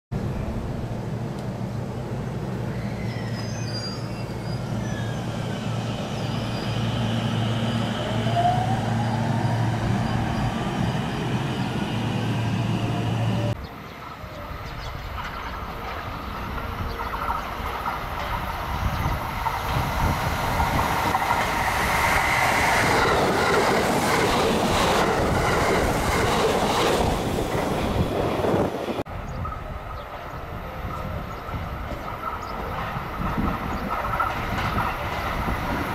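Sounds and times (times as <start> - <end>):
electric train passing at speed: 0.2 - 35.9
train approaching: 0.2 - 35.9
clatter over rail joints: 31.9 - 35.9.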